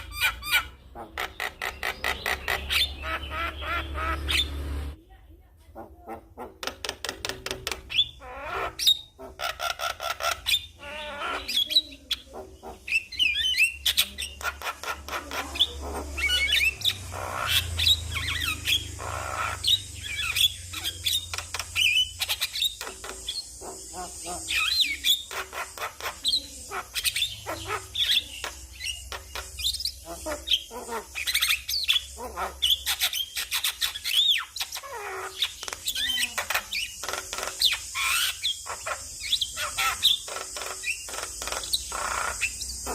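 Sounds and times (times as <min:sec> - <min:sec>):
bird singing clicks and whistles: 0:35.4 - 0:38.6.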